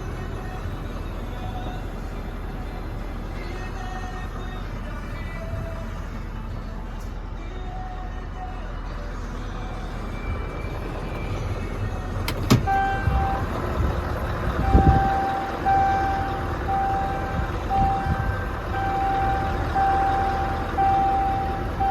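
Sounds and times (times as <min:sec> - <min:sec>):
diesel engine running: 0:00.0 - 0:21.9
reversing alarm beeping: 0:12.6 - 0:13.6, 0:14.6 - 0:21.9.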